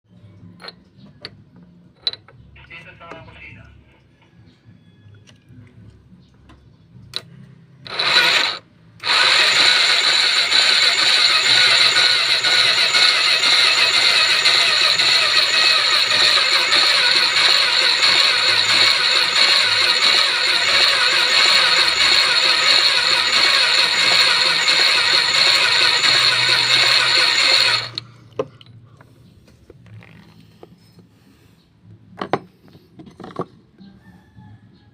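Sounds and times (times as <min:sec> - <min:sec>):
electric starter spinning: 0:07.2 - 0:28.1.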